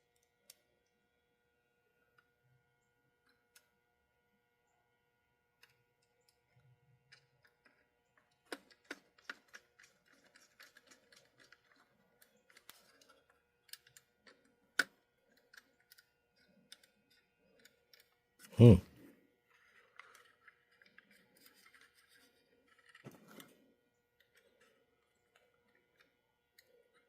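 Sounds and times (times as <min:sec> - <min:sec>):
small parts and tools clicking: 0:05.6 - 0:18.8, 0:19.5 - 0:27.0.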